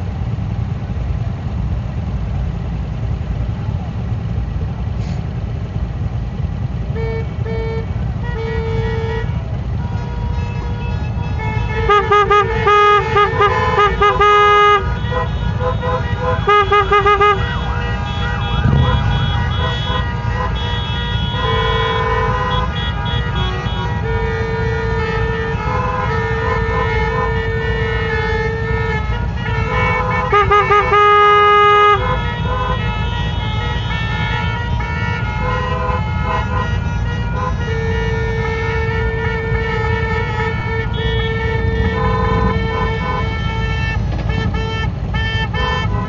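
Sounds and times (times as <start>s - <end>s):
engine and wind rumble: 0.0s - 46.0s
vehicle horns honking: 6.5s - 46.0s.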